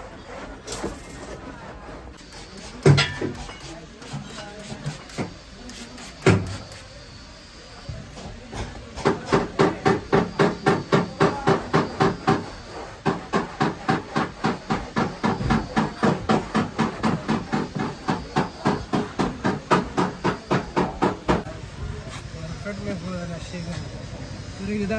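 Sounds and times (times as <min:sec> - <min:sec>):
hammer striking car body steel: 0:02.8 - 0:03.4.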